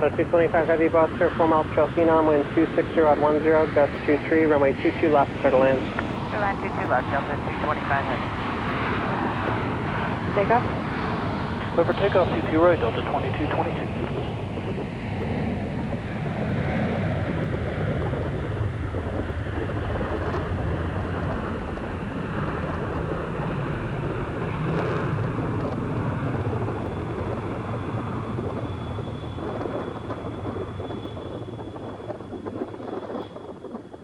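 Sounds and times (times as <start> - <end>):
jet airliner engine roar: 0.0 - 34.0.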